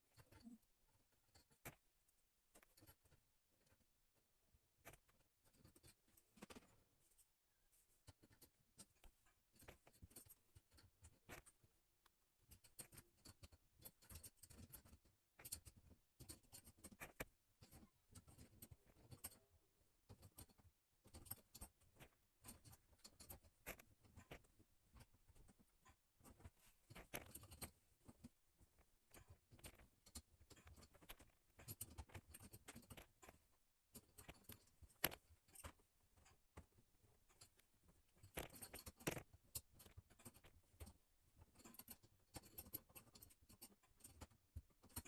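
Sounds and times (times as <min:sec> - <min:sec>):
plumbing fittings clicking and scraping: 0:08.0 - 0:19.5, 0:20.1 - 0:45.0.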